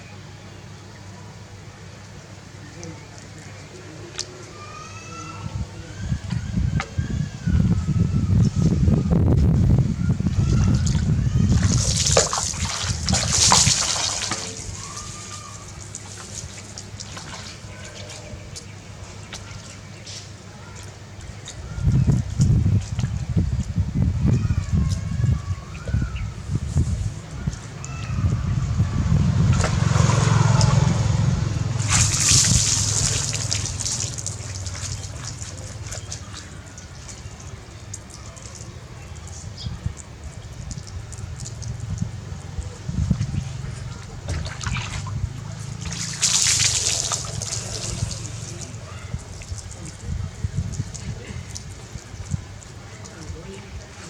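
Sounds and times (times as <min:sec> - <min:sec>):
bath water splashing: 0:10.1 - 0:54.0
low rumble: 0:22.0 - 0:35.2.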